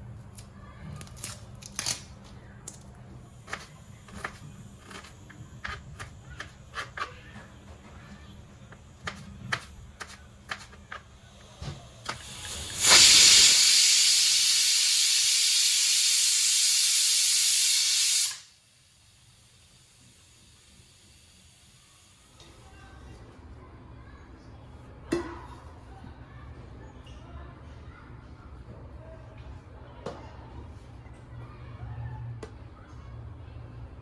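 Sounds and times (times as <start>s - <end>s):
steam hissing: 11.4s - 22.4s.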